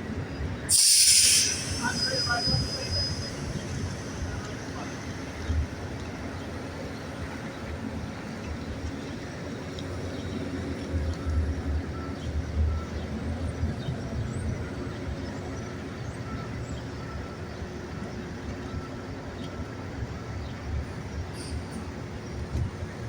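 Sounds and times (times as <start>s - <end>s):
bus engine rumble: 0.0s - 23.0s.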